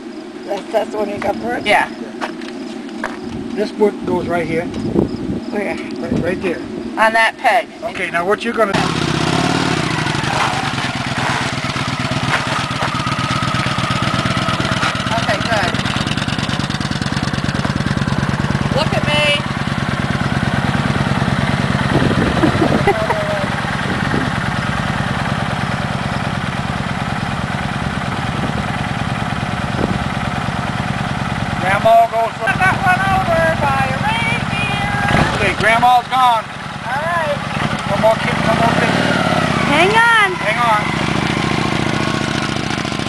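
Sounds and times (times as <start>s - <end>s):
motorcycle engine idling: 8.7s - 43.0s.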